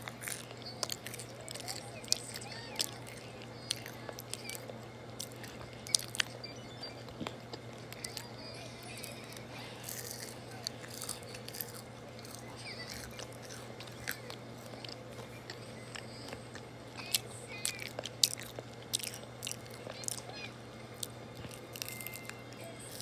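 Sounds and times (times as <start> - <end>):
chewing fries with mouth clicks: 0.0 - 23.0.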